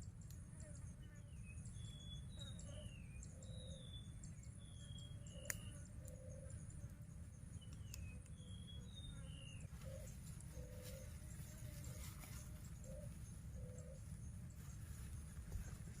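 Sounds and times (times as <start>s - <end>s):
high insect hum: 0.0s - 16.0s.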